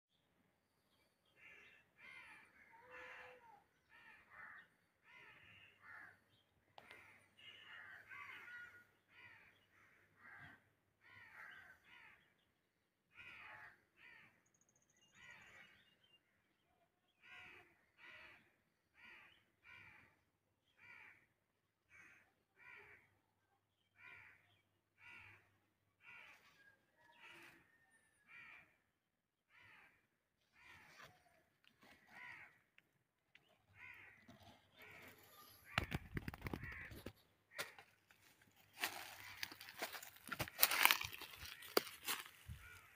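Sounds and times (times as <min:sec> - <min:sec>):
faint bird calls: 0:01.2 - 0:12.4, 0:23.9 - 0:28.8, 0:29.5 - 0:42.9.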